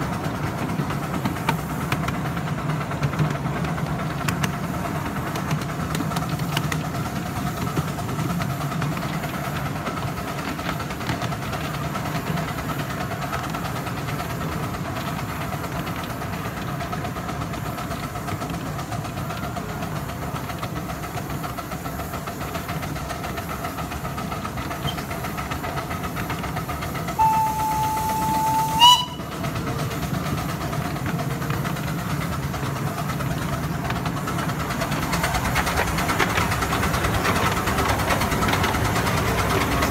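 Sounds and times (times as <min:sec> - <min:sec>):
miniature steam train running: 0:00.0 - 0:39.9
steam whistle: 0:27.2 - 0:29.3.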